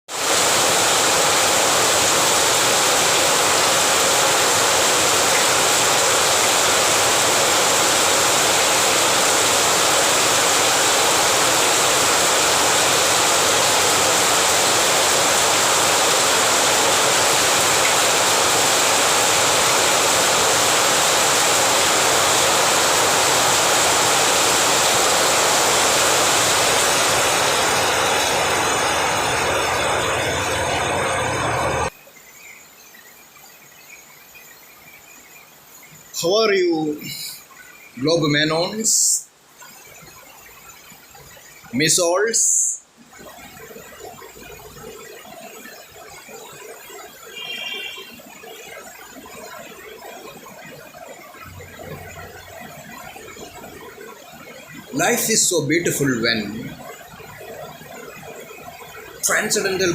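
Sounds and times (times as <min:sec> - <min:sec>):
heavy rain falling: 0:00.1 - 0:31.9.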